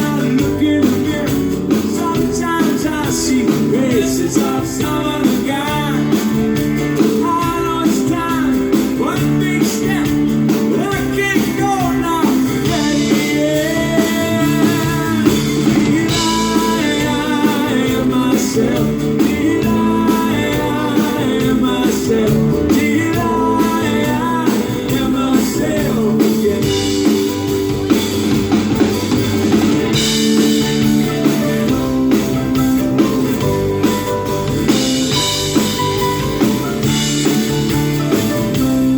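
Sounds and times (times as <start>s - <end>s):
person singing: 0.0s - 27.8s
drum kit: 0.0s - 38.9s
electric guitar: 0.0s - 38.9s.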